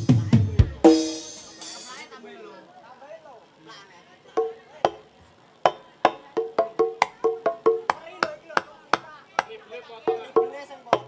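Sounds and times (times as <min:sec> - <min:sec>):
pitched drum strokes: 0:00.0 - 0:02.2.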